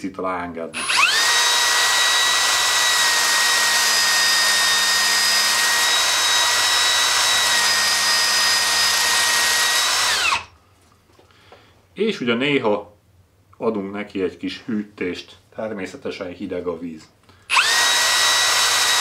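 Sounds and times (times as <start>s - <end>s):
drill spinning grinding wheel: 0.8s - 10.5s, 17.5s - 19.0s.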